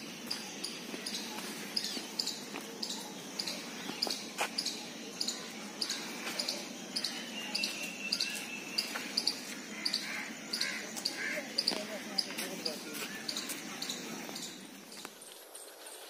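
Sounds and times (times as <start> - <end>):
small bird chirping: 0.2 - 12.3.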